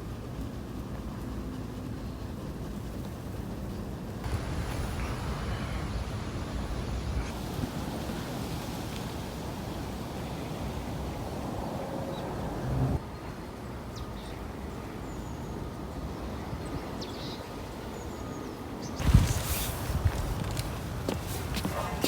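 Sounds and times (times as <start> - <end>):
wind rumbling on microphone: 2.6 - 13.2, 19.0 - 22.0.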